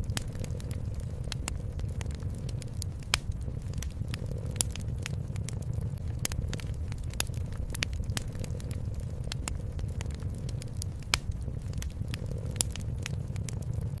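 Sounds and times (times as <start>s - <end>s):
cat purring: 0.0s - 14.0s
wood fire crackling and popping: 0.0s - 14.0s.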